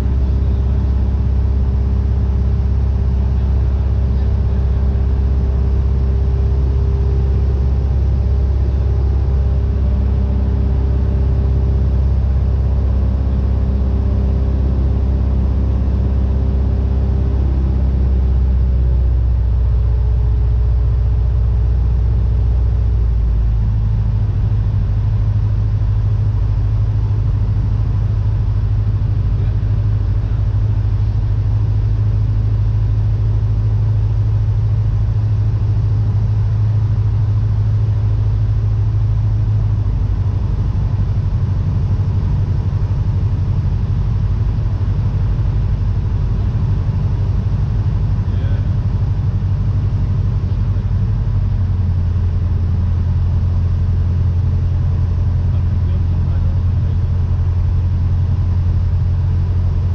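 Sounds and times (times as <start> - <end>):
propeller plane engine drone: 0.0 - 59.9.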